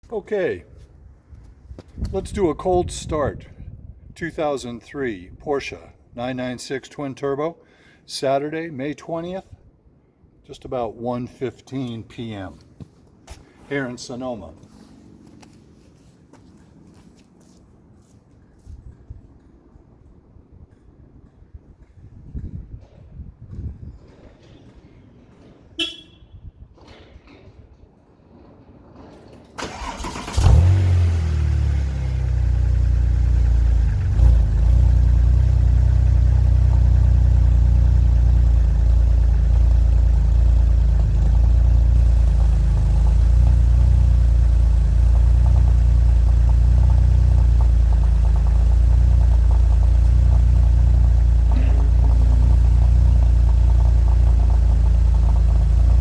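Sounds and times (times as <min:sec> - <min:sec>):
car engine starting and idling: 0:28.4 - 0:56.0
starter cranking: 0:29.6 - 0:31.0.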